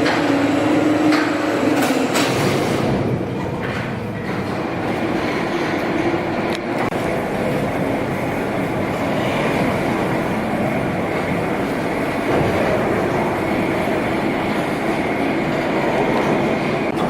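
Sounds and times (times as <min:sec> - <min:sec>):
sawmill machinery rattling: 0:00.0 - 0:17.0.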